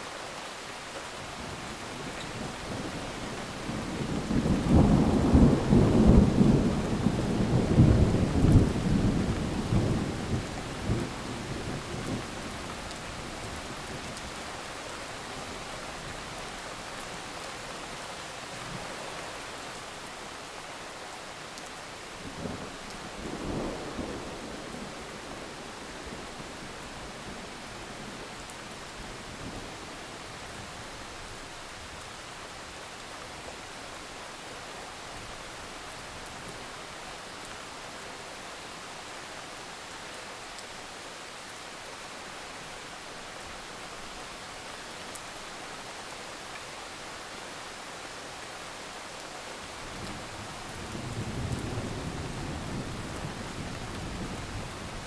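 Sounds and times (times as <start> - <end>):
rain hissing: 0.0 - 37.8.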